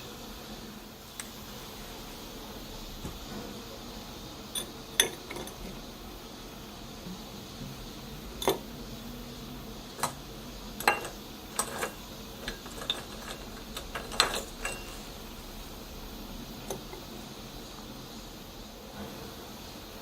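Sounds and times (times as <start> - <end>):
ice cubes clinking into glass: 10.8 - 15.1.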